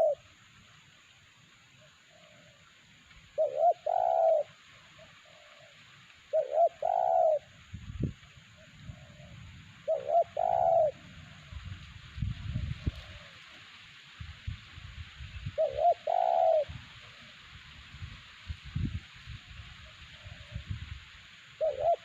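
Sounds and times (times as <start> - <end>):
dove cooing: 0.0 - 0.2, 3.4 - 7.6, 8.6 - 11.5, 12.6 - 13.4, 15.6 - 16.8, 21.6 - 22.0.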